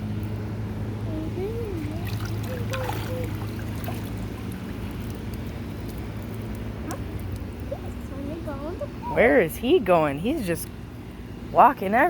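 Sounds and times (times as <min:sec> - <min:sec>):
steady low hum: 0:00.0 - 0:12.0
water trickling: 0:01.1 - 0:10.3.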